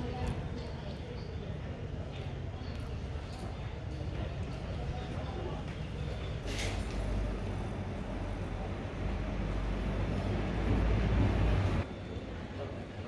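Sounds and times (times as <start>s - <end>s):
motor vehicle rumble: 6.4s - 11.9s.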